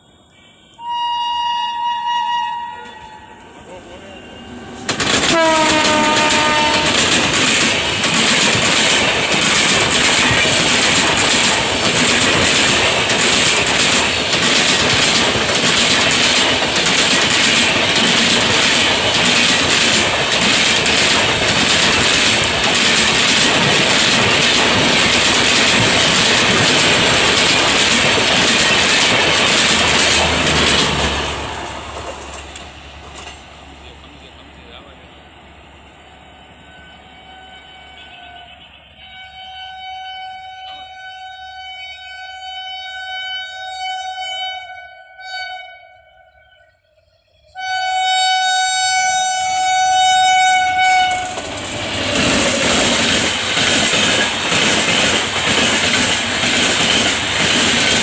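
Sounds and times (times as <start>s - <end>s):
train horn: 0.3s - 7.1s, 36.2s - 46.8s, 47.5s - 51.5s
train wheels rumbling and clattering: 2.8s - 36.0s, 49.9s - 58.0s.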